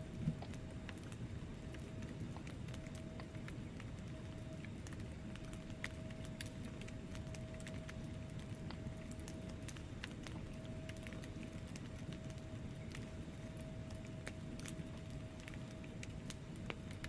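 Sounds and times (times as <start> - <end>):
low rumble of flames: 0.0 - 17.0
thin steady hum: 0.0 - 17.0
wood fire crackling and popping: 0.0 - 17.0.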